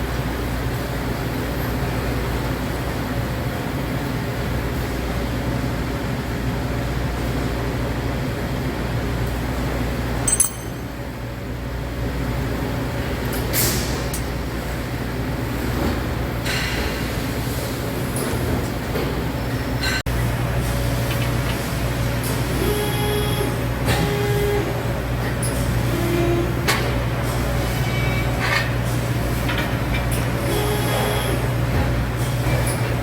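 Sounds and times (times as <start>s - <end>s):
low mechanical hum: 0.0s - 33.0s
sharp metallic clink: 10.3s - 11.2s.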